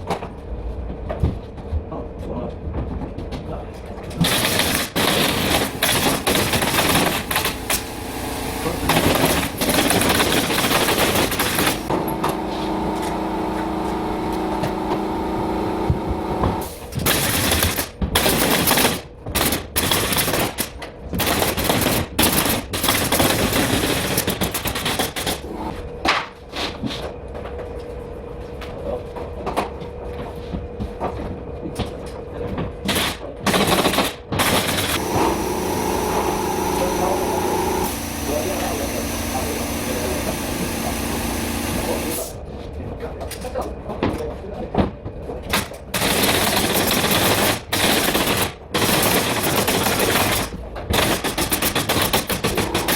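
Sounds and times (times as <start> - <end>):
machine running steadily: 0.0 - 26.4, 27.1 - 42.6, 43.3 - 52.9
pneumatic nail gun firing: 4.2 - 25.6, 32.8 - 42.4, 45.5 - 52.9.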